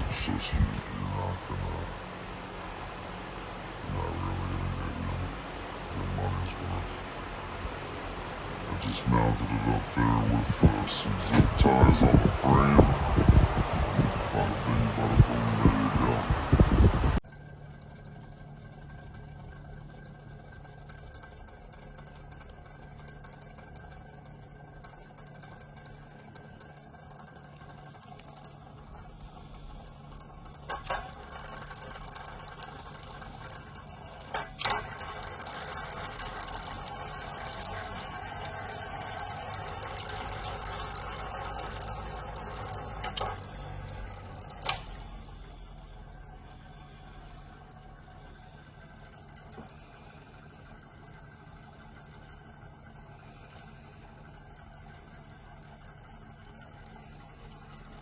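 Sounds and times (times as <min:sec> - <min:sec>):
fan motor hum with rattle: 0:00.0 - 0:58.0
rush of air: 0:11.4 - 0:17.2.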